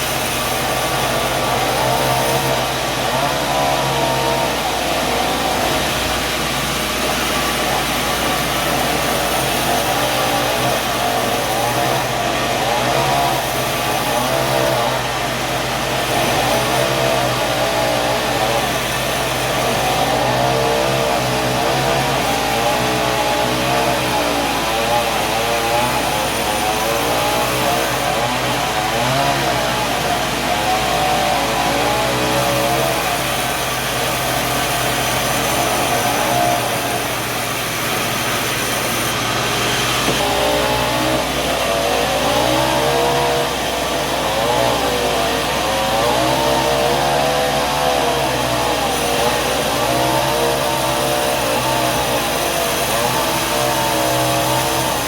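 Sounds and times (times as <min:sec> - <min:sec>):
sawmill machinery running: 0:00.0 - 0:55.0.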